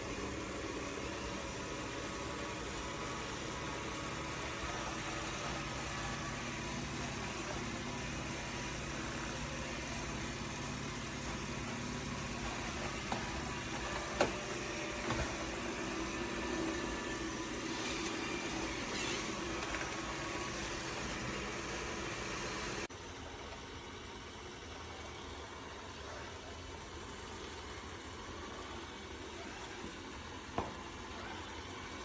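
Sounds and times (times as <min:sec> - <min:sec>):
robot vacuum motor hum: 0:00.0 - 0:23.7.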